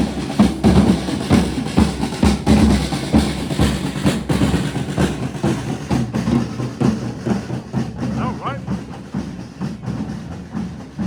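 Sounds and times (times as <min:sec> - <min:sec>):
snare and bass drums beating: 0:00.0 - 0:11.0.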